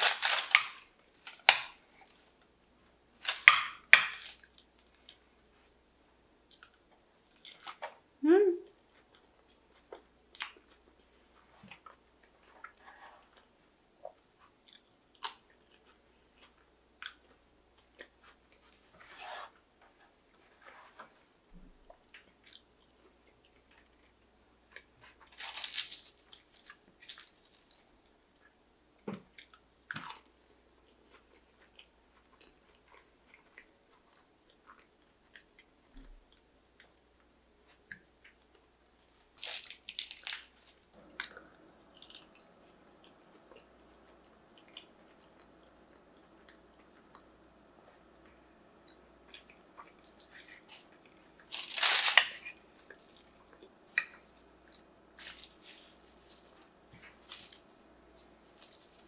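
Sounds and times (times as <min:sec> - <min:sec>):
chewing and wet mouth sounds: 0:22.1 - 0:25.3, 0:29.3 - 0:51.9, 0:52.5 - 0:59.0.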